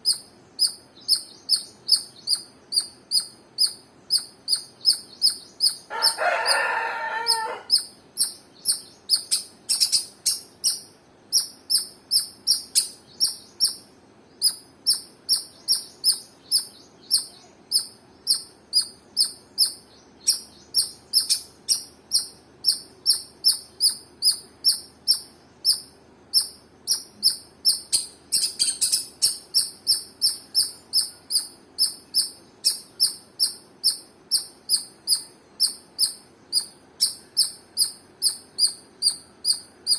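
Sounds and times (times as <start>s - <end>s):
squirrel chirping: 0.0s - 39.9s
louder lower animal call: 5.9s - 7.8s.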